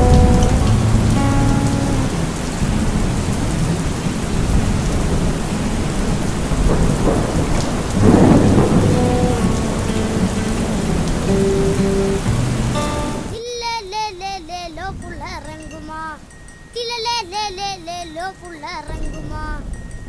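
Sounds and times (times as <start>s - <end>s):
thunder rumbling: 0.0s - 13.4s
heavy rain: 0.0s - 19.9s.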